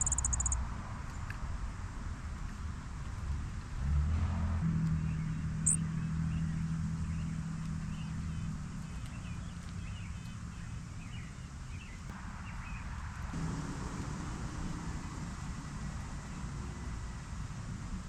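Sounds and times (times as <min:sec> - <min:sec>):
small birds chirping: 0:00.0 - 0:00.6, 0:05.1 - 0:12.9
low engine hum: 0:00.0 - 0:18.0.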